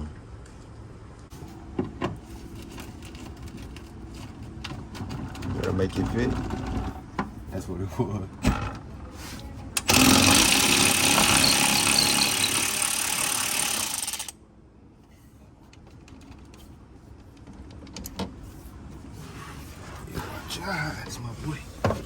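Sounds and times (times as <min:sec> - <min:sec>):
impact wrench running: 0:09.8 - 0:14.4.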